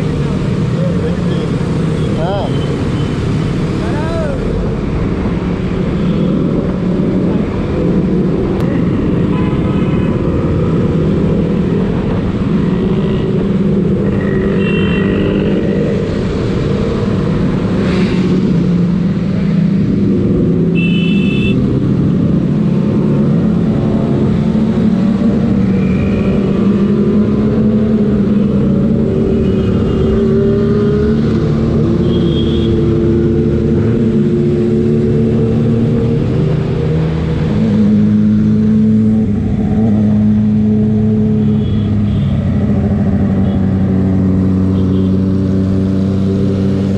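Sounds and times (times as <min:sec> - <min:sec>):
traffic noise: 0:00.0 - 0:46.9.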